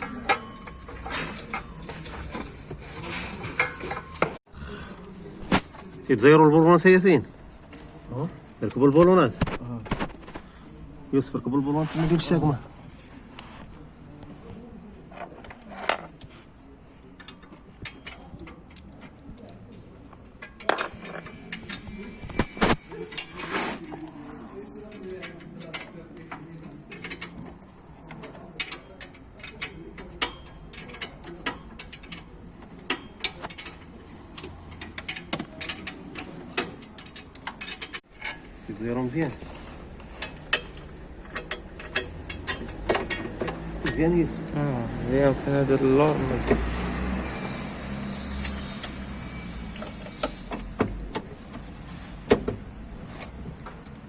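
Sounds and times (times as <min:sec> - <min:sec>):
metal tools clinking: 0:00.0 - 0:04.4, 0:15.1 - 0:16.3, 0:17.1 - 0:44.4, 0:47.2 - 0:51.7.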